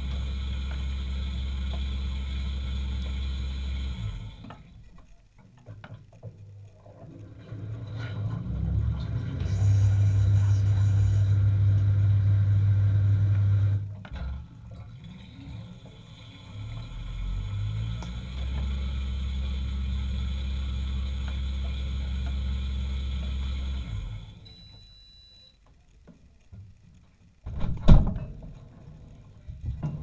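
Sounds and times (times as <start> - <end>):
lower-pitched pump hum: 0.0 - 4.8, 6.7 - 25.2
dishwasher pump humming: 0.0 - 25.2.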